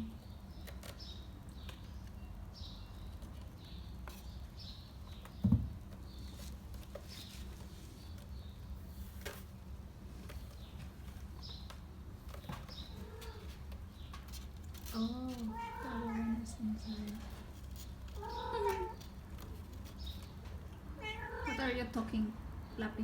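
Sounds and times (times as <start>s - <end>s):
dull thump: 5.4s - 5.8s.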